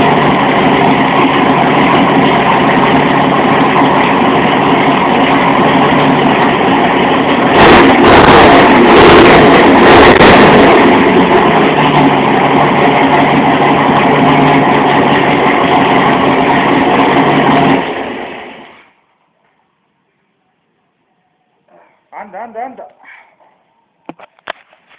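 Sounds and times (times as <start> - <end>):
engine revving: 0.0 - 18.7
car engine rumbling at idle: 0.0 - 18.8.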